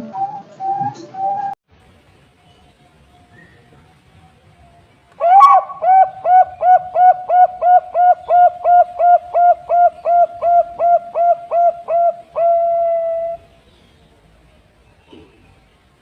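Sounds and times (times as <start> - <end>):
dove cooing: 0.0 - 1.6, 5.2 - 13.5.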